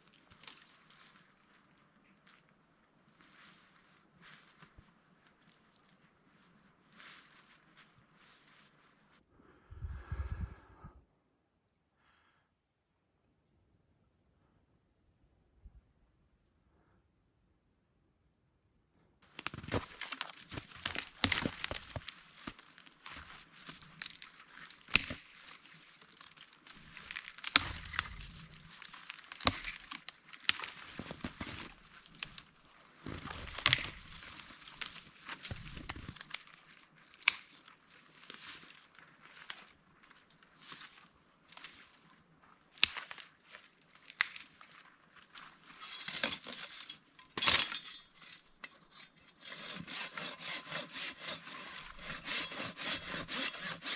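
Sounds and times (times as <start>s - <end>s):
material crinkling and cracking: 0.0s - 2.5s, 19.2s - 49.3s.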